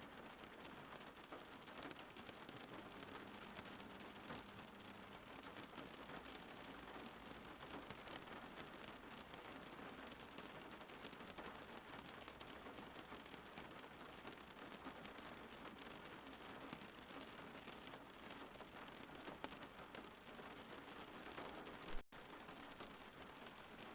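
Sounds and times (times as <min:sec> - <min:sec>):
faint steady rain: 0:00.0 - 0:23.9.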